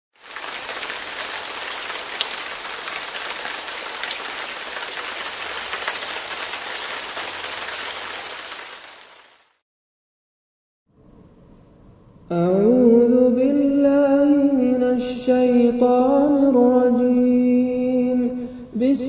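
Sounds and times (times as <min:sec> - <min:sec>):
steady rain: 0:00.1 - 0:09.6
raindrop ticks: 0:00.2 - 0:08.0.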